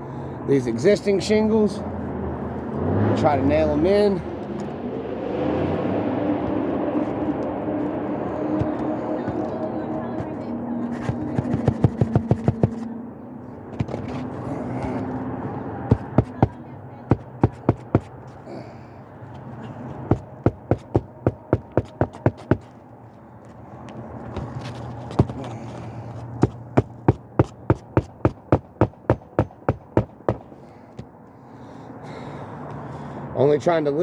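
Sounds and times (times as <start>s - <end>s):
hammer striking roofing nails: 10.9s - 12.8s, 15.9s - 18.2s, 20.1s - 22.7s, 25.2s - 25.5s, 26.4s - 31.1s.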